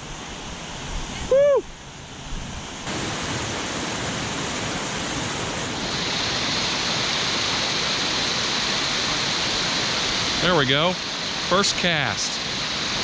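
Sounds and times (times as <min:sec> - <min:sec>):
creek water spilling over dam: 0:02.9 - 0:13.0.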